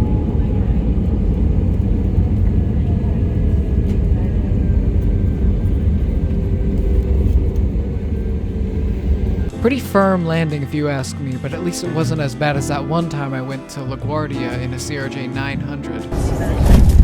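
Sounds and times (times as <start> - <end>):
airliner engines and airflow rumble: 0.0 - 13.6.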